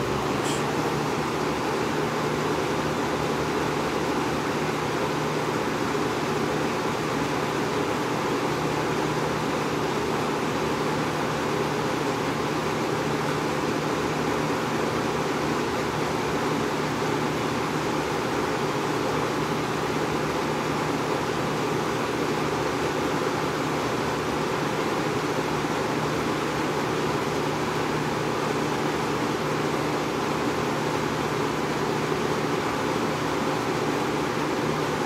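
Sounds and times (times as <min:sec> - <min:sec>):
box fan running: 0:00.0 - 0:35.0.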